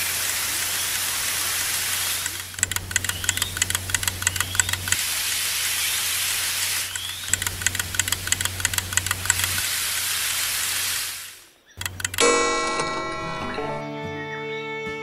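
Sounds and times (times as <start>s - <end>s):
hiss of liquid flowing: 0.0s - 3.0s, 3.9s - 11.6s
pump motor hum with rapid clicking: 0.0s - 5.1s, 6.9s - 10.1s, 11.8s - 13.3s.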